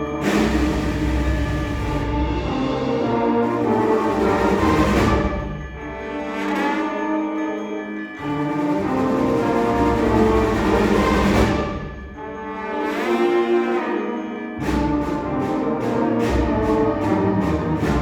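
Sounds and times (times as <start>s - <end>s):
sharp percussion hits: 0.0s - 7.0s.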